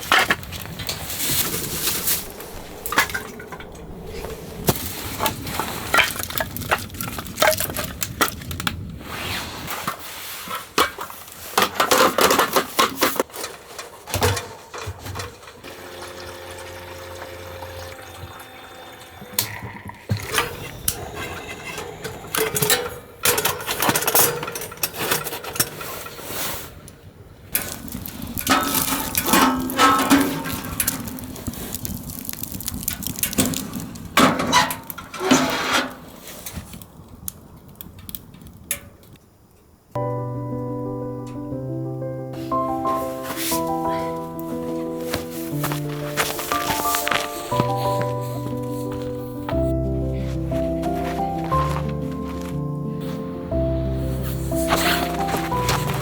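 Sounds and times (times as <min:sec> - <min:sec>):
objects knocking and clattering: 0:10.8 - 0:15.6
liquid pouring: 0:15.6 - 0:20.3.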